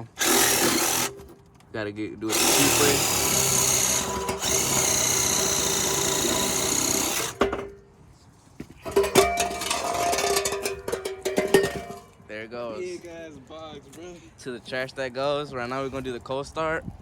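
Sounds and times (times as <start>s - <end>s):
power tool cutting steel pipe: 0.0s - 1.3s, 2.3s - 7.6s
sharp metallic clanks: 2.3s - 7.8s, 8.8s - 12.2s.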